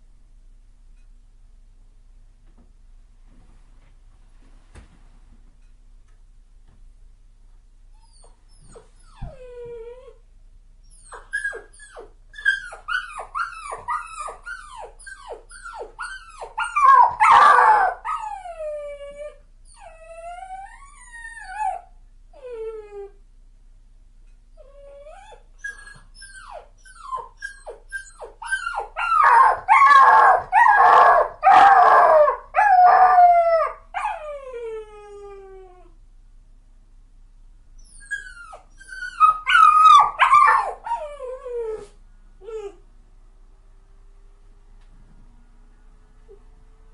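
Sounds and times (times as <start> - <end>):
dog whimpering and crying: 8.0 - 10.2, 10.9 - 23.2, 24.6 - 36.0, 37.8 - 42.8.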